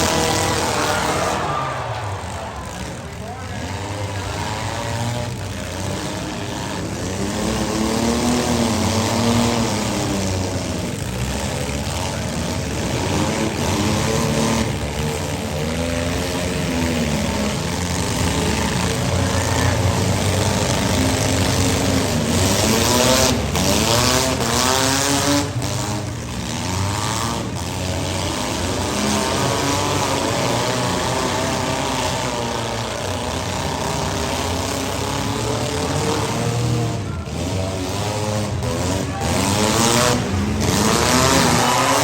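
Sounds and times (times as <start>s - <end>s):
cars colliding bangs: 0.0s - 5.5s
car engines revving: 0.0s - 42.0s.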